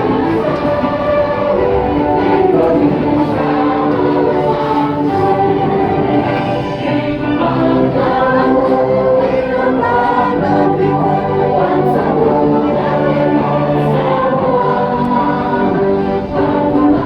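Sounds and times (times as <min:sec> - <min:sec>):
chorus of voices singing: 0:00.0 - 0:17.0.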